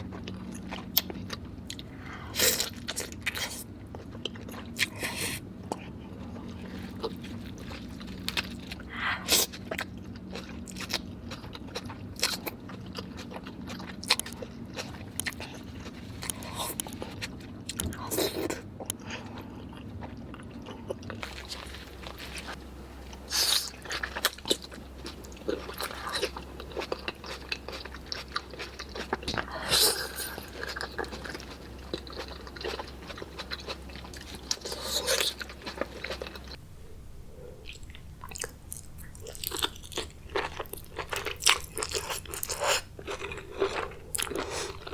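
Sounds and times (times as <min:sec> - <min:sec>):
low background hum: 0:00.0 - 0:44.9
wet biting and chewing: 0:06.6 - 0:19.0, 0:19.8 - 0:36.6, 0:37.6 - 0:44.9
crab shell cracking: 0:14.1 - 0:17.2.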